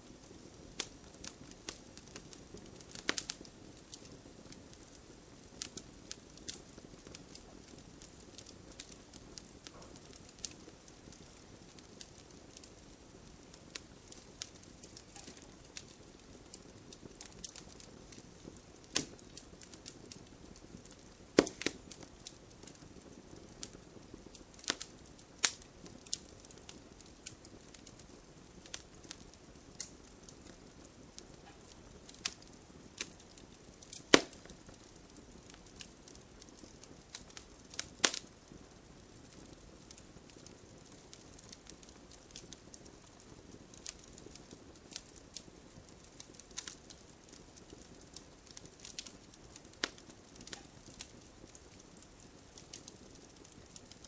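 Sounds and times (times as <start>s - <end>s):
bonfire crackling and popping: 0.0s - 54.0s
light rain hiss: 0.0s - 54.0s.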